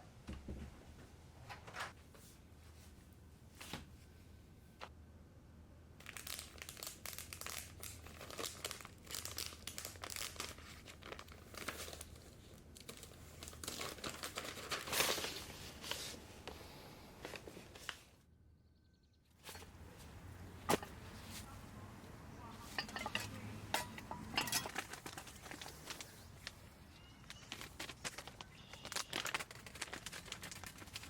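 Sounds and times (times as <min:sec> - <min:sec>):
wrapping crinkling and tearing: 0:06.0 - 0:16.2, 0:24.0 - 0:31.0.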